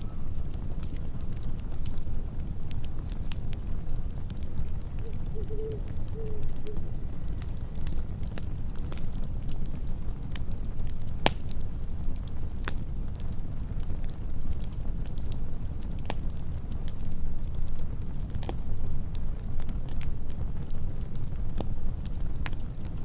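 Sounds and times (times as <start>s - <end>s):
cricket chirping: 0.0s - 7.4s
campfire crackling and popping: 0.0s - 23.0s
low steady rumble: 0.0s - 23.0s.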